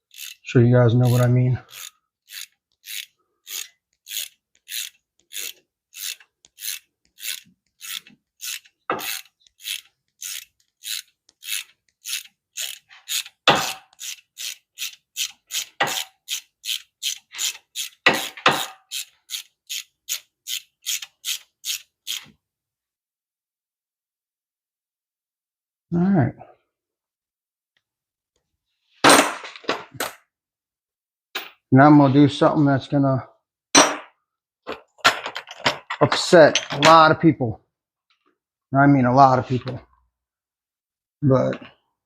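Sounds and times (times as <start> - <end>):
hand ratchet clicking: 0.0 - 22.2.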